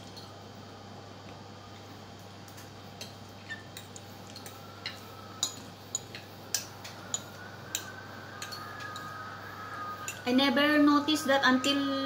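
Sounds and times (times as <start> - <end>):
cutlery clinking on plates: 2.5 - 9.1.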